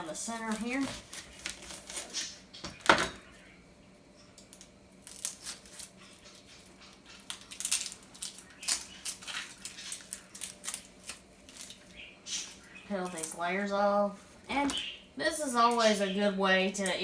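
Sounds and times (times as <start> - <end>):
onion skin clicks and rustles: 0.0 - 2.9, 4.4 - 15.0.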